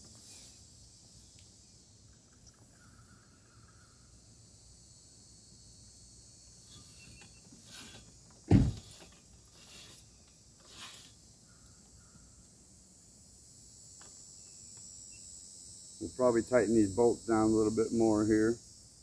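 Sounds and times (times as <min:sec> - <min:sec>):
faint high hiss: 0:00.0 - 0:19.0
short rustling: 0:06.7 - 0:11.2
heavy low thump: 0:08.5 - 0:08.9.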